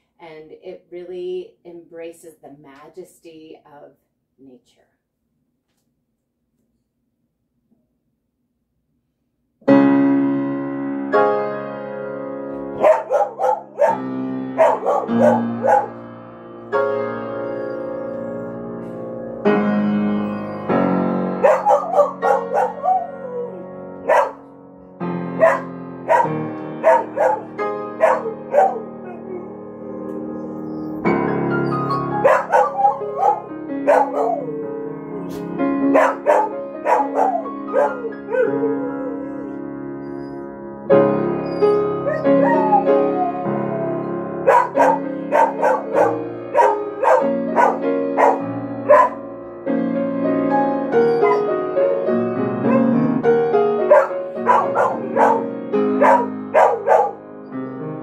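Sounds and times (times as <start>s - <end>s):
solo piano playing slow piece: 9.6s - 58.0s
dog howling and yipping: 12.8s - 14.0s, 14.6s - 16.0s, 21.4s - 24.4s, 25.4s - 35.3s, 36.0s - 40.5s, 41.4s - 49.2s, 51.0s - 51.5s, 52.7s - 53.0s, 53.9s - 57.2s.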